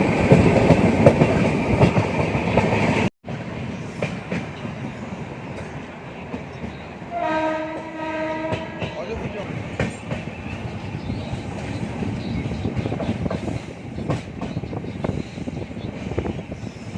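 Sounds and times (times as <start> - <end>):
train wheels clattering on rails: 0.0 - 16.9
train horn: 7.1 - 9.2.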